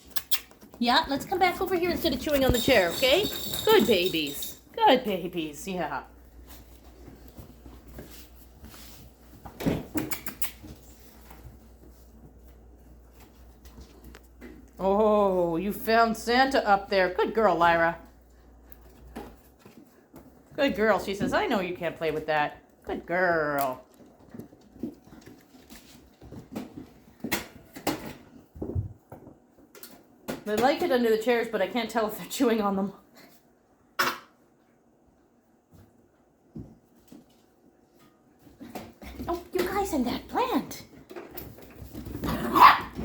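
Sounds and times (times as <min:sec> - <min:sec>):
puppies knocking and scrabbling: 0:00.5 - 0:04.7, 0:23.8 - 0:31.1, 0:38.4 - 0:43.0.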